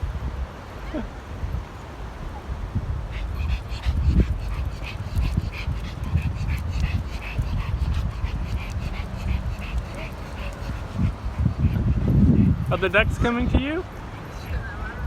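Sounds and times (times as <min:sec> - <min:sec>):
dog whimpering: 0:03.1 - 0:12.6.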